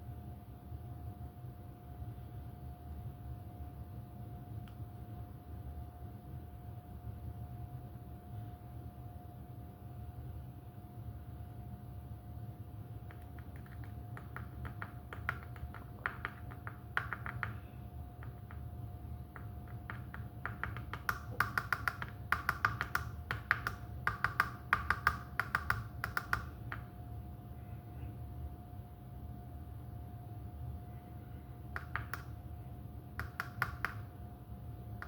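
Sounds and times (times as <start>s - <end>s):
steady low hum: 0.0s - 35.0s
rapid light clicks and taps: 13.0s - 27.0s, 31.7s - 32.4s, 33.2s - 34.2s.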